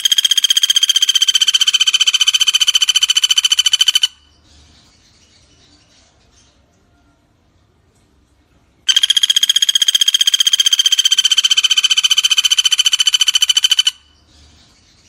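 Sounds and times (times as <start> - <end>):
woodpecker trilling: 0.0 - 4.3, 8.9 - 14.3.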